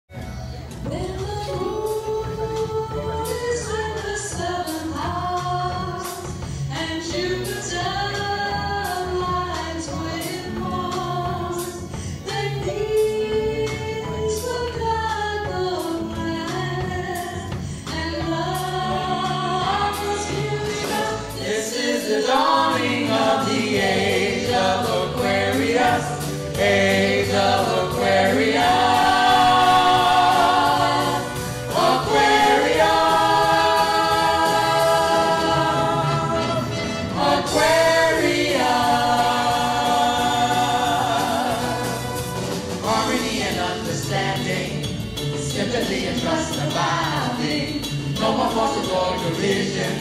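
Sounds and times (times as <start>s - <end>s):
instrumental accompaniment: 0.1s - 50.0s
vocal group singing in harmony: 0.9s - 50.0s.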